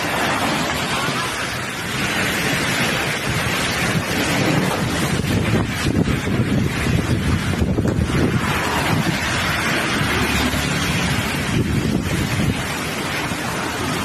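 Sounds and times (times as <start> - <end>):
heavy rain downpour: 0.0 - 14.0
wind buffeting microphone: 0.0 - 14.0.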